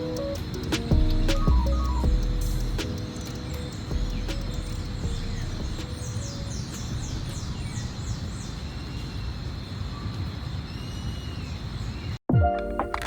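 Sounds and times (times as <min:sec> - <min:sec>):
steady low rumble: 0:00.9 - 0:02.8, 0:03.9 - 0:06.0.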